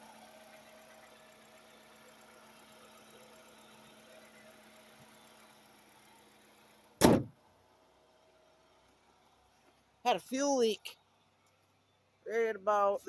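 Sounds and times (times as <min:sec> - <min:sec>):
car engine idling: 0:00.0 - 0:13.0
loud slam: 0:07.0 - 0:07.3.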